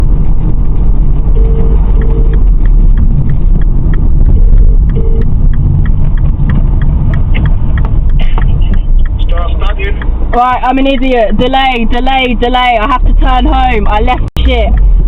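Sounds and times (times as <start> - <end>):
road and engine rumble: 0.0 - 15.0
faint regular ticking: 0.1 - 15.0
short even beeps: 1.3 - 2.4, 4.2 - 5.4.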